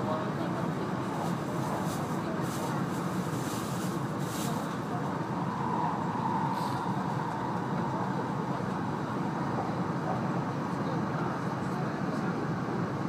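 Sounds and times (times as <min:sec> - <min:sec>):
train cabin rumble: 0:00.0 - 0:12.4
faint whine: 0:04.4 - 0:11.9.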